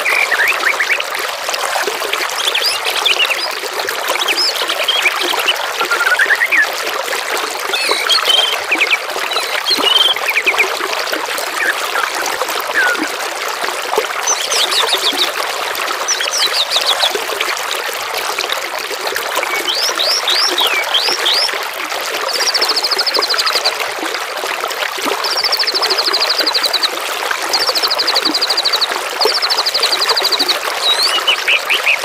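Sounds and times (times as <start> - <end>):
water trickling: 0.0 - 32.0
songbirds chirping and trilling: 7.7 - 10.6, 29.7 - 32.0.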